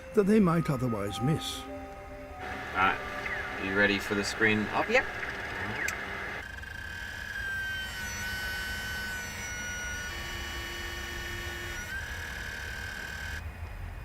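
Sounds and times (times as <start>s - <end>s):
machinery low rumble: 1.1s - 6.4s
high electric whine: 2.4s - 14.0s.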